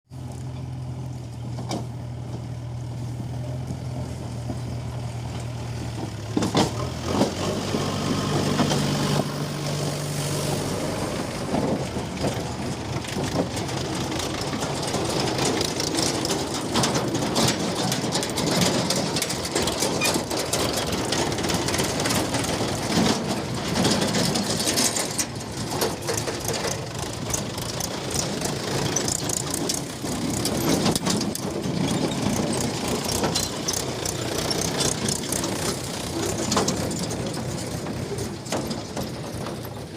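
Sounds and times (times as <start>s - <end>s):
heavy diesel machinery running: 0.1s - 39.9s
stones rattling into trolley: 10.4s - 39.9s.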